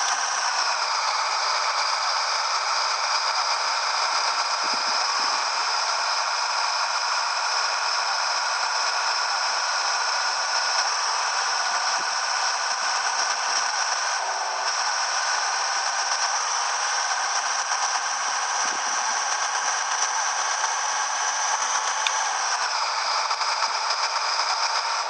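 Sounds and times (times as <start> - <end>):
truck cab rattling and hissing: 0.0 - 7.6, 8.2 - 25.0
high whining tones: 10.5 - 24.1.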